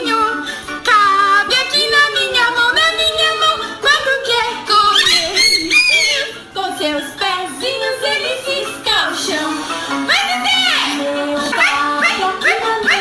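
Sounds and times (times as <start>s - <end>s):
cockatoo singing: 4.3s - 6.4s, 10.1s - 13.0s.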